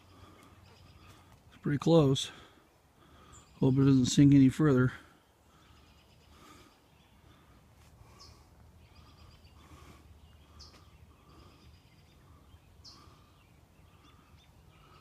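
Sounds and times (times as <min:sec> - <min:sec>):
faint bird calls: 0:05.0 - 0:15.0.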